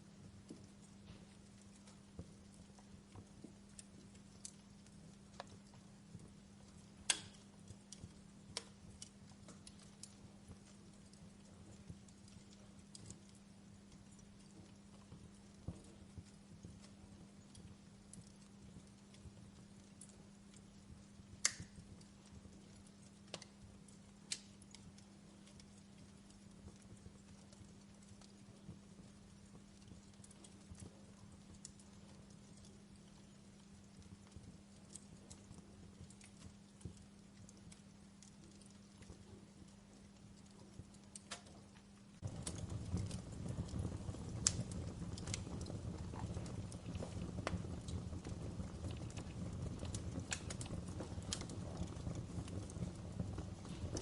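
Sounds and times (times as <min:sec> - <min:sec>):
faint steady hum: 0:00.0 - 0:54.0
low steady hiss: 0:00.0 - 0:54.0
wood fire crackling: 0:00.0 - 0:54.0.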